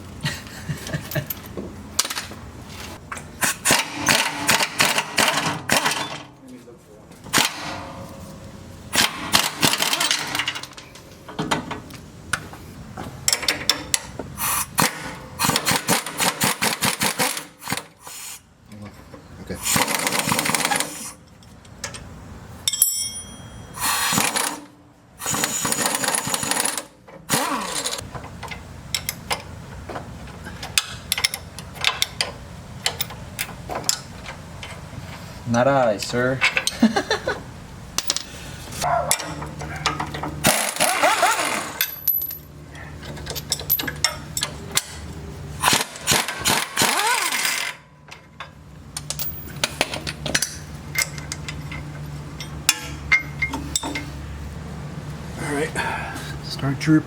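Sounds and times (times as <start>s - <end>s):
pneumatic impact wrench hammering: 3.4s - 6.2s, 7.3s - 8.1s, 8.9s - 10.8s, 13.2s - 18.4s, 19.6s - 21.2s, 23.7s - 28.0s, 39.1s - 42.3s, 45.6s - 47.8s.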